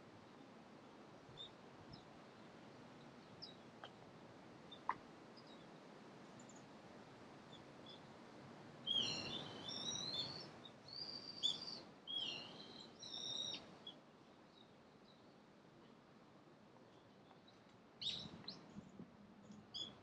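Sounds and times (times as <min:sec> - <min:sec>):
faint bird chirps: 0:01.4 - 0:02.1, 0:03.0 - 0:04.0, 0:04.7 - 0:05.7, 0:08.8 - 0:15.4, 0:16.9 - 0:20.0
bird shrill calls: 0:08.9 - 0:13.6.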